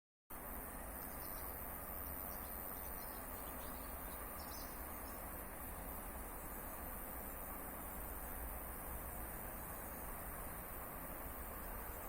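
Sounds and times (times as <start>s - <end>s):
faint chirps: 0.7s - 5.9s.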